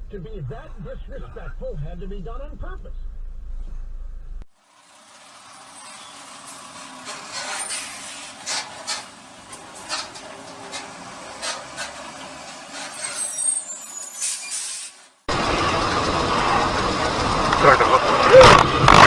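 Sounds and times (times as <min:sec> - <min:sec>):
traffic noise: 0:00.0 - 0:19.0
loud road noise: 0:04.4 - 0:19.0.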